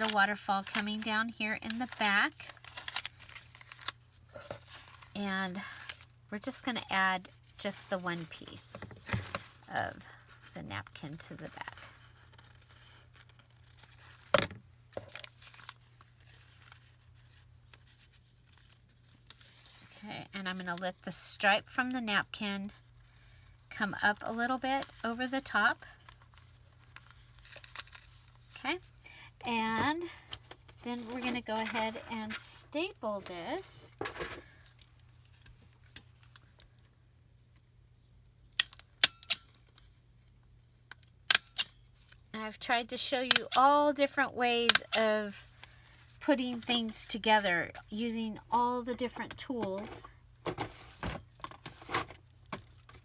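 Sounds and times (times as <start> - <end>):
paper rustling: 0.0 - 6.1, 29.6 - 34.6
paper crackling: 0.0 - 6.2, 6.8 - 14.4, 22.8 - 36.7.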